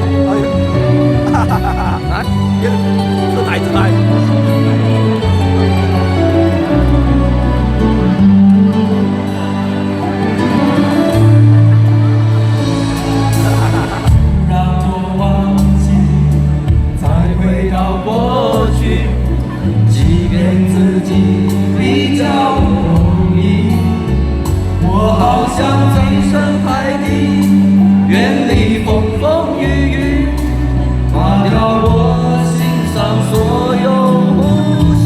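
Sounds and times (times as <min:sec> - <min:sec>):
person singing: 0:00.0 - 0:04.2, 0:13.0 - 0:16.2
live pop-rock band: 0:00.0 - 0:35.0.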